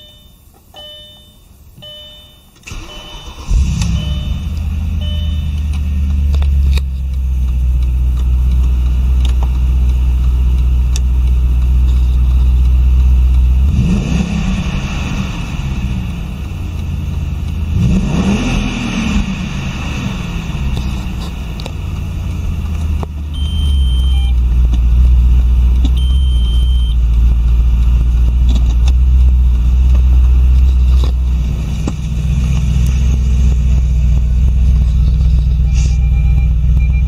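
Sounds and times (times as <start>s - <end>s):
short high beeps: 0.0s - 5.6s, 23.4s - 24.4s, 26.0s - 27.0s, 35.6s - 37.0s
car engine revving and idling: 2.6s - 37.0s.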